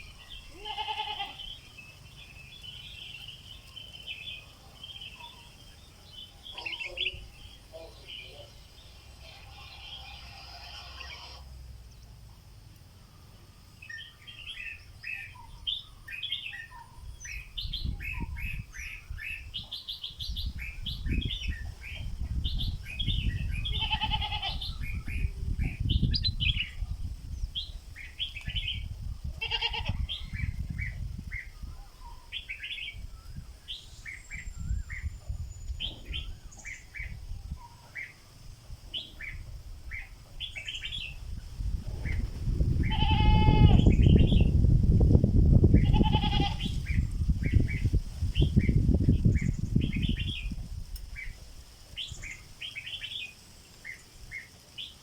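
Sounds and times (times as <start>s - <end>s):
bird chirping song: 0.0s - 12.4s, 13.0s - 55.0s.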